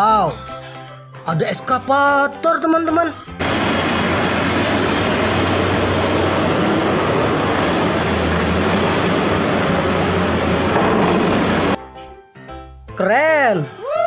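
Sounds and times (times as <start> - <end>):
heavy engine running: 3.4 - 11.8.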